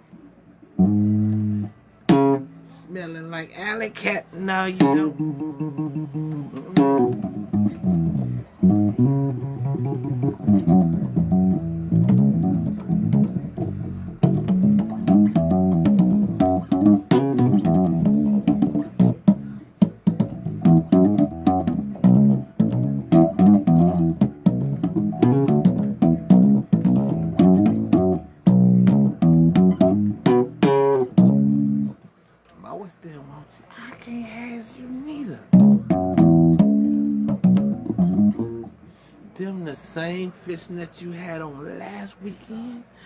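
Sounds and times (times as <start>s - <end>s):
bass string clicks: 0.8s - 2.5s, 4.8s - 32.0s, 35.5s - 38.8s
bass guitar riff: 0.8s - 2.8s, 4.6s - 32.0s, 35.5s - 39.0s.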